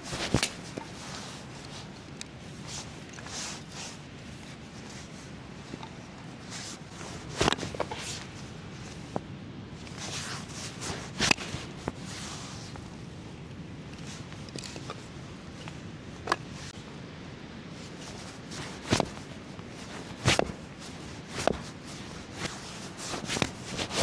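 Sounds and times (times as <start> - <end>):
shuffling footsteps: 0.0 - 13.0, 17.8 - 24.0
rustling: 0.0 - 16.9, 17.7 - 24.0.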